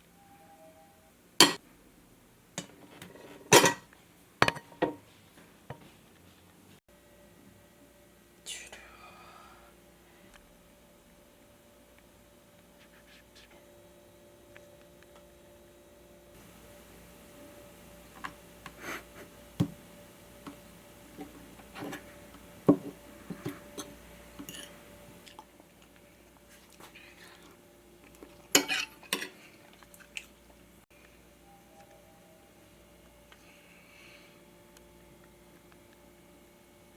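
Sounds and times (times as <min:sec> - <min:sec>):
utensils clinking on dishes: 0:02.6 - 0:05.0, 0:23.8 - 0:24.8, 0:28.4 - 0:29.5.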